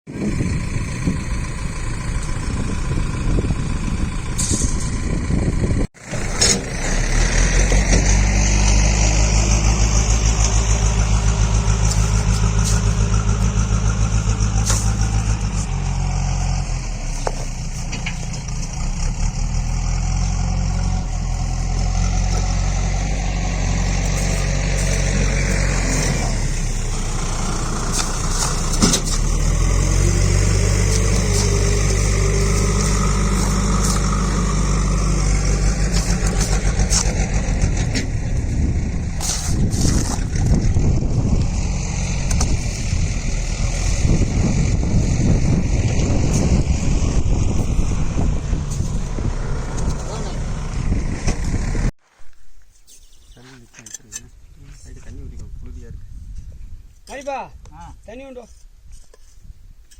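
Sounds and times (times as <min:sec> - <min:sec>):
engine running with pulsing beat: 0:00.1 - 0:07.0, 0:17.1 - 0:51.9.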